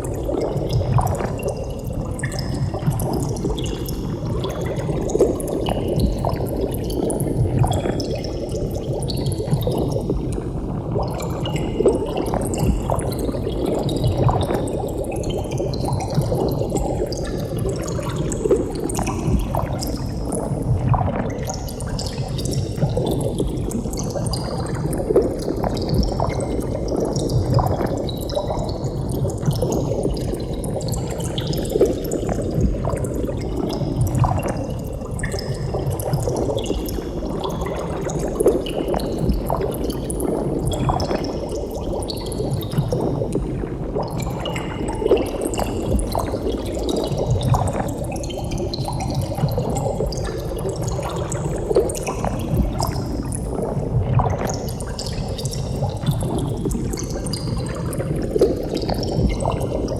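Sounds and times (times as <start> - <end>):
water bubbling and gurgling: 0.0 - 59.9.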